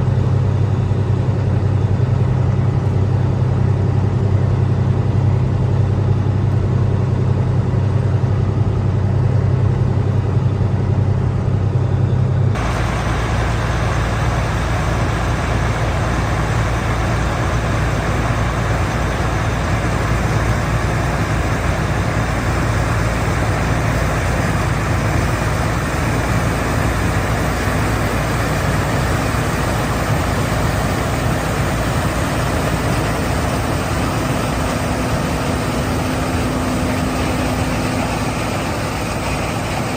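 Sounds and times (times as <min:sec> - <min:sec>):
combine harvester engine drone: 0:00.0 - 0:39.9
rushing machine noise: 0:00.0 - 0:39.9.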